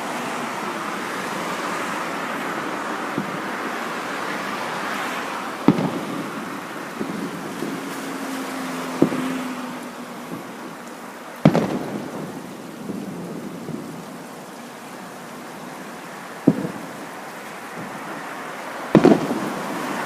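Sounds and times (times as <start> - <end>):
fireworks crackle: 0.0 - 20.0
fireworks booming: 2.6 - 3.7, 5.6 - 8.1, 9.0 - 9.6, 11.4 - 14.2, 16.4 - 17.0, 18.9 - 20.0.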